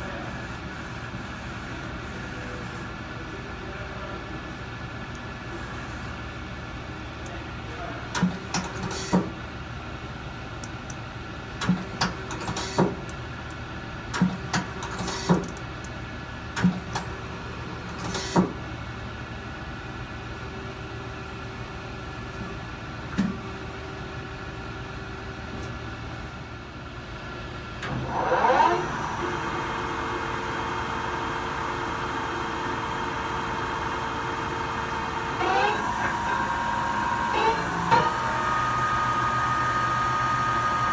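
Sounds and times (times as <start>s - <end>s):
machine whine: 27.8s - 40.9s
lathe humming: 28.8s - 40.9s.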